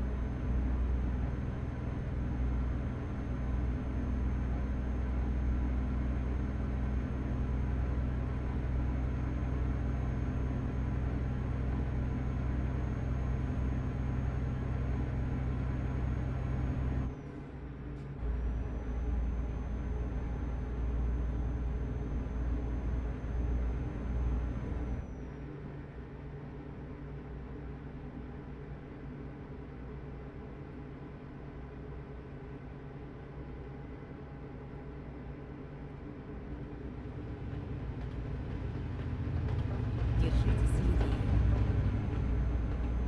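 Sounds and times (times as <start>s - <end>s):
truck engine running: 36.9s - 43.0s.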